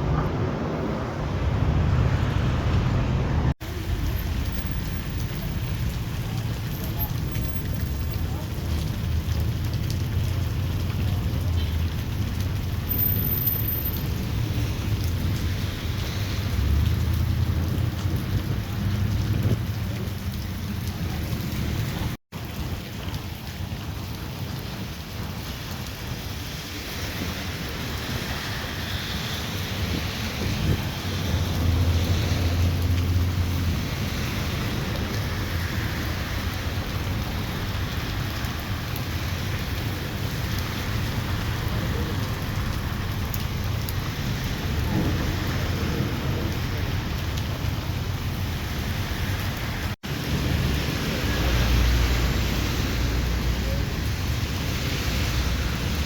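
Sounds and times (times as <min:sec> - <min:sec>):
heavy rain hissing: 0:23.8 - 0:56.0.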